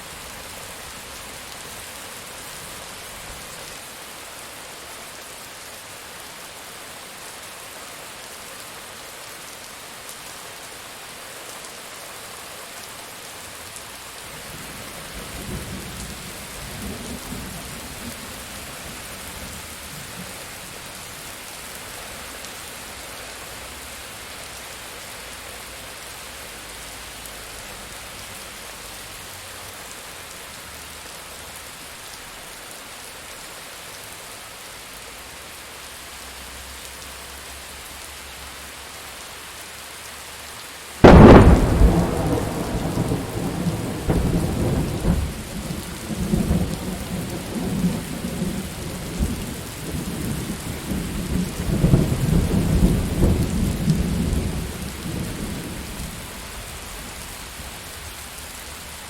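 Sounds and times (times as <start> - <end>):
steady rain falling: 0.0 - 59.0
thunderclap and rolling rumble: 41.0 - 56.2.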